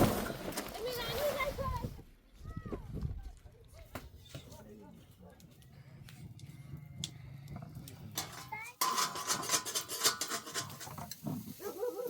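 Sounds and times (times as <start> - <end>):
rapid clinks and rattles: 8.1 - 11.0.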